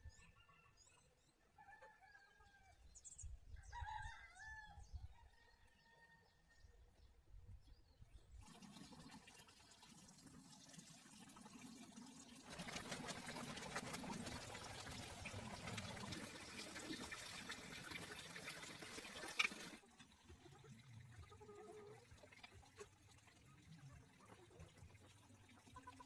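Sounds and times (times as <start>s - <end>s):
water running: 8.4s - 26.0s.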